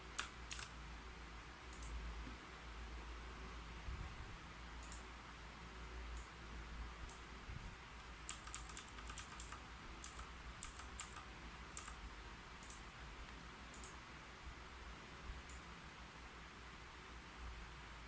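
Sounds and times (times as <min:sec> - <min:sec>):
keyboard typing: 0:00.0 - 0:00.7, 0:08.2 - 0:12.0.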